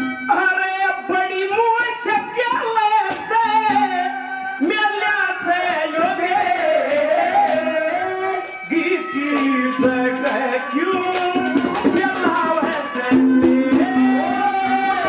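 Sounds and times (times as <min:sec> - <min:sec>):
folk melody: 0:01.4 - 0:15.0
percussion strokes: 0:08.4 - 0:15.0.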